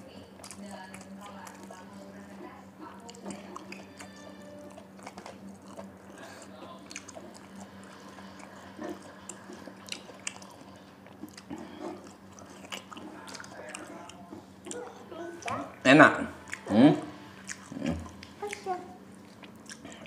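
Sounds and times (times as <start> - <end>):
chewing and wet mouth clicks: 3.0 - 5.9, 6.9 - 8.6, 9.2 - 14.8, 17.4 - 20.0.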